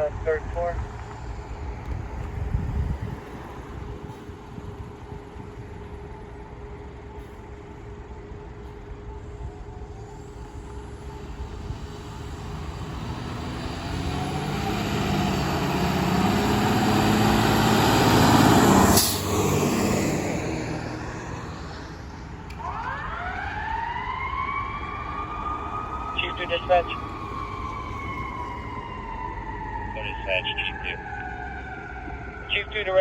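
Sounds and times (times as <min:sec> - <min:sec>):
fire engine diesel engine: 0:00.0 - 0:33.0.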